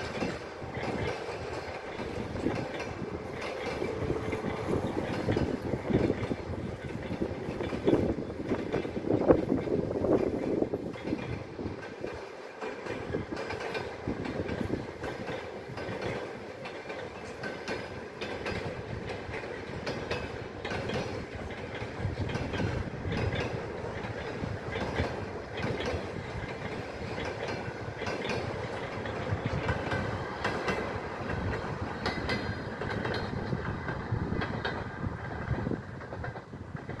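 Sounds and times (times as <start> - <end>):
train rumble: 0.0 - 37.0
train wheels clicking over rail joints: 0.0 - 37.0.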